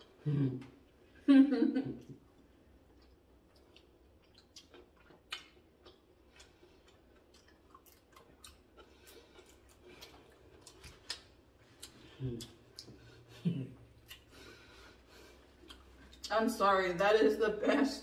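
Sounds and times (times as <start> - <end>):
soft chewing: 2.0 - 16.4
mouth clicks and smacks: 2.9 - 14.3, 15.5 - 16.3.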